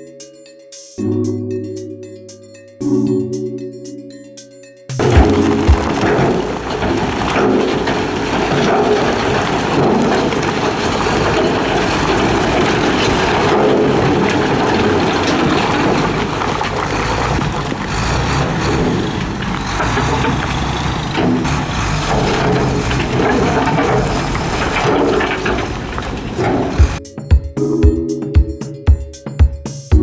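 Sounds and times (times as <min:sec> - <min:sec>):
broad rushing noise: 0:05.0 - 0:27.0
diesel construction machinery engine: 0:05.0 - 0:27.0.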